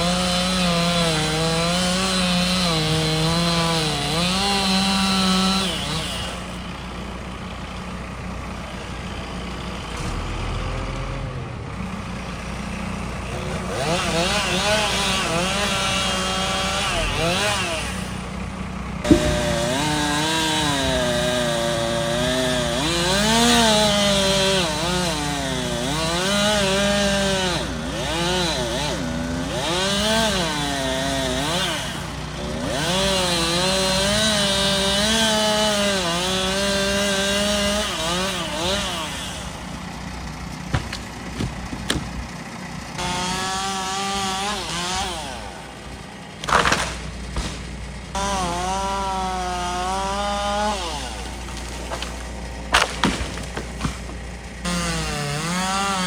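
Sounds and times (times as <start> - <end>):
chainsaw cutting wood: 0.0 - 7.8, 12.1 - 56.0
sharp knock: 19.1 - 21.4.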